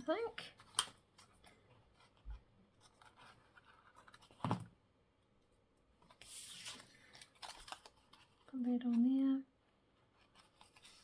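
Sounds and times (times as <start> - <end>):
paper rustling: 6.0 - 9.0, 10.0 - 11.0
paper sliding: 6.1 - 7.8.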